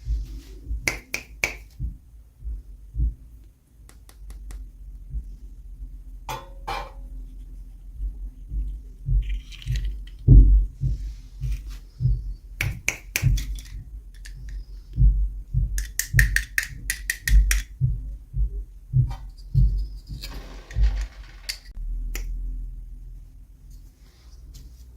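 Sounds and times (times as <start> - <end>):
low bumps and thuds: 0.0 - 0.8, 1.8 - 3.4, 5.0 - 6.8, 7.9 - 22.1
sharp plastic clicks: 15.8 - 17.8.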